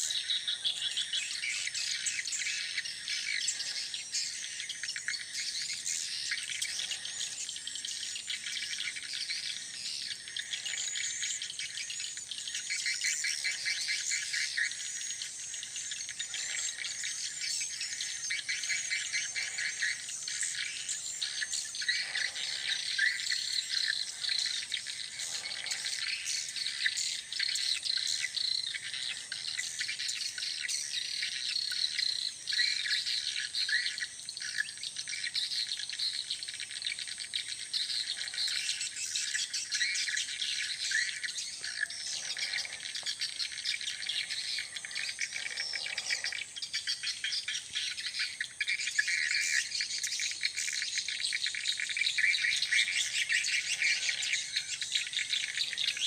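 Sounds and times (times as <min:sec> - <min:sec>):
small birds chirping and twittering: 0:00.0 - 0:56.0
high insect drone: 0:00.1 - 0:56.0.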